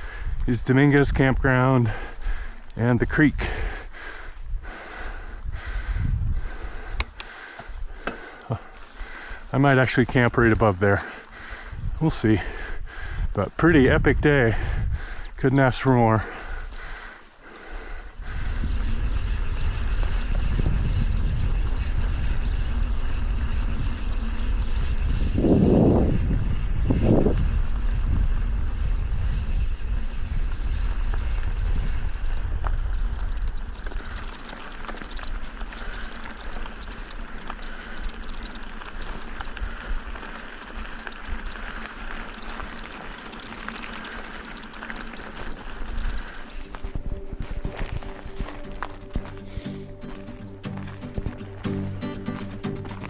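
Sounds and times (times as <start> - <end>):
wind buffeting microphone: 0.0 - 17.0, 17.8 - 34.3, 45.3 - 49.2
bike tyres on rough dirt: 0.0 - 53.0
rattling clicks from bike: 6.5 - 11.4, 16.7 - 26.3, 28.3 - 47.2.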